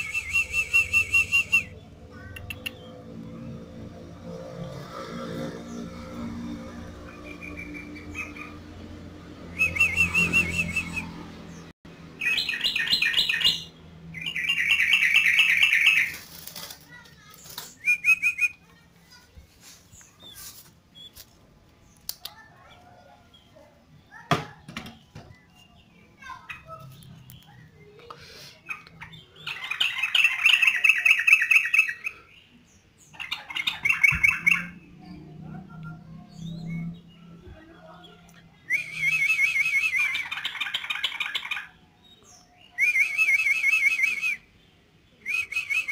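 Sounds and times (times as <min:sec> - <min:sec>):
bird singing chattering bursts: 0:33.1 - 0:34.8.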